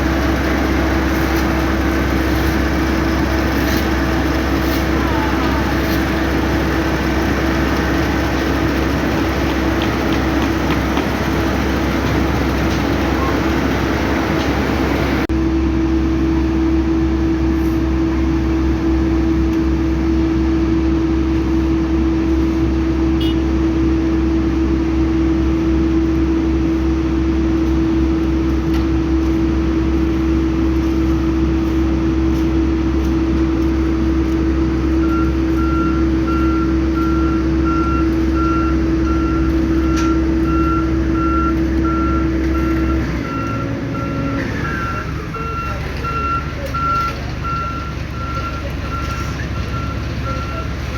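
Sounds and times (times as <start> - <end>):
reversing alarm beeping: 0.0 - 15.3, 34.9 - 50.9
diesel construction machinery humming: 0.0 - 50.9.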